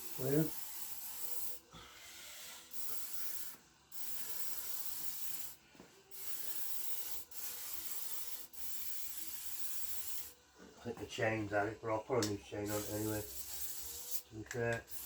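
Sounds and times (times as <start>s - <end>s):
aerosol can hissing: 0.0s - 1.6s, 2.7s - 10.3s, 12.6s - 15.0s.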